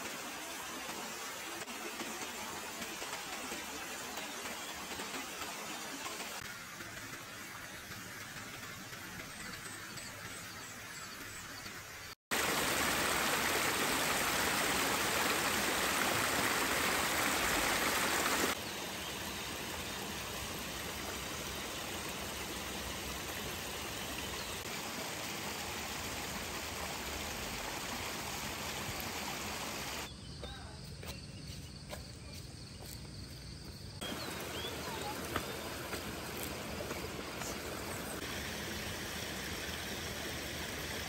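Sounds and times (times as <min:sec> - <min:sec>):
outdoor hiss: 0:00.0 - 0:30.1, 0:32.8 - 0:41.0
stream water rushing: 0:12.3 - 0:30.1, 0:34.0 - 0:41.0.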